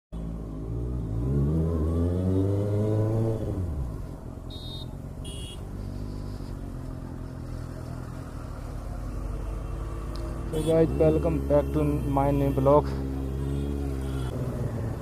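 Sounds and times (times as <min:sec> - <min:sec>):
motorcycle engine revving: 0:00.2 - 0:03.8.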